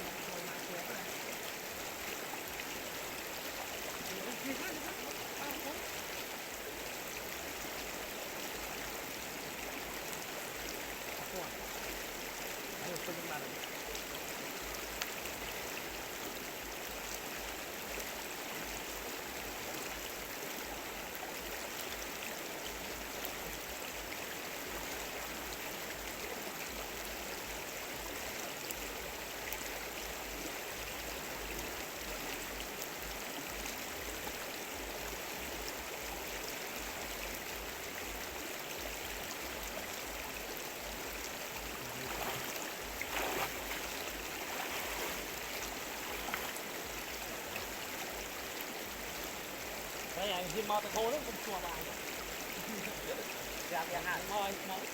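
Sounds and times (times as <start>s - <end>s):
stream water flowing: 0.0s - 54.9s.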